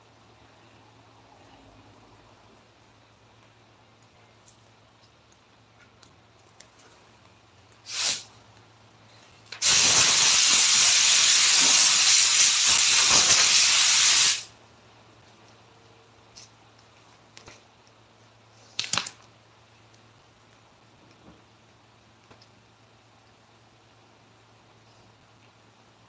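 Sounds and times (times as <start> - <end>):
pressurised nozzle hissing: 7.9 - 8.3, 9.6 - 14.5.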